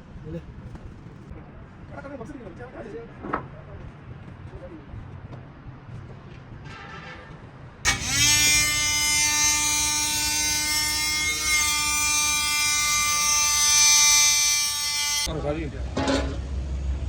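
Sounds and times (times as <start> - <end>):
power tool motor whining: 7.9 - 15.3.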